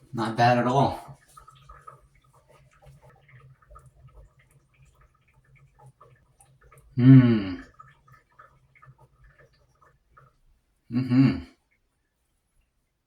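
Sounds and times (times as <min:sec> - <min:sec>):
small ticks and rustles: 0:01.0 - 0:07.0, 0:07.6 - 0:10.9.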